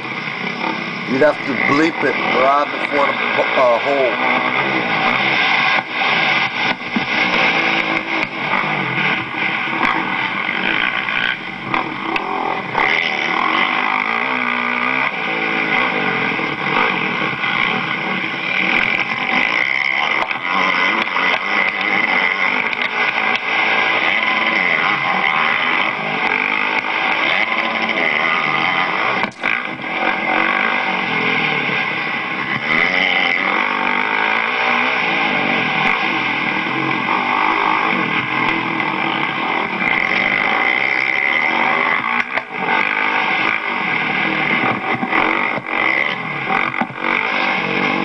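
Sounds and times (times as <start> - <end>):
motocross bike engine revving: 0.0 - 48.0.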